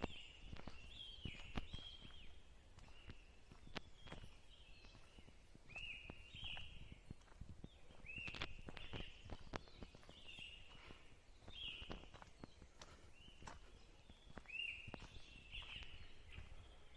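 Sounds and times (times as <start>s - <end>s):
bird calling: 7.8s - 16.9s.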